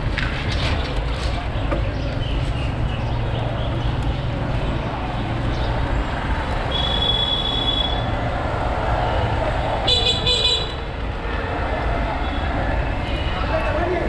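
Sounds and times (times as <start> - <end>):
road traffic rumble: 0.0 - 14.0
vehicle horns honking: 6.7 - 8.2, 9.9 - 10.9.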